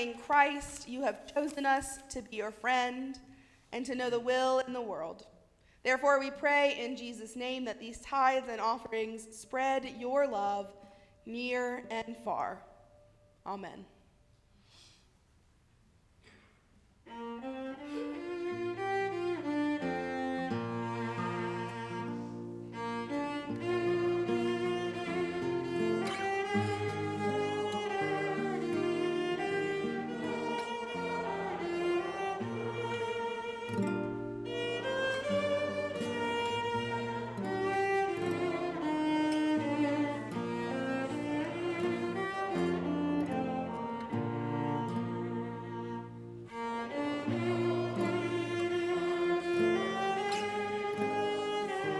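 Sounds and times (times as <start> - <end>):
cello and violin playing slowly: 17.0 - 51.9.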